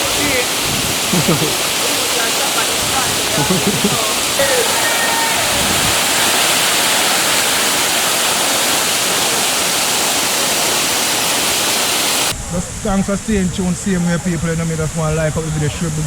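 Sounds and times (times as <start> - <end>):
waterfall pouring: 0.0 - 12.4.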